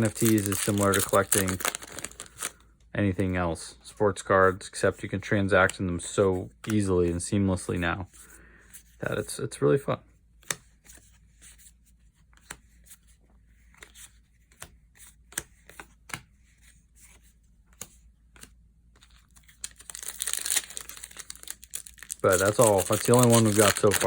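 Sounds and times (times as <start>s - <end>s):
foil wrapper crinkling and tearing: 0.0s - 2.6s, 19.5s - 24.0s
trading cards clicking: 19.6s - 24.0s.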